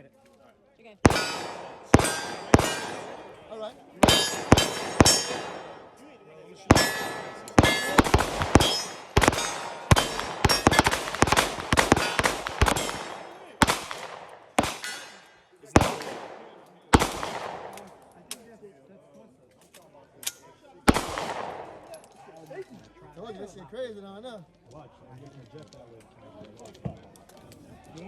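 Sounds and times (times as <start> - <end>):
gunshots: 1.0 - 6.0, 6.7 - 18.2, 20.9 - 22.2
steel targets ringing: 1.1 - 6.0, 6.7 - 14.0, 14.6 - 16.0.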